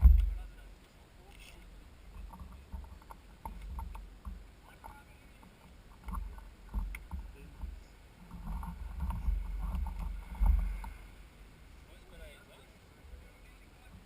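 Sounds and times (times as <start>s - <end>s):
bike rattling and knocking: 0.0s - 0.5s, 2.1s - 4.4s, 5.5s - 10.9s
wind rumble on microphone: 0.0s - 0.6s, 2.0s - 11.6s.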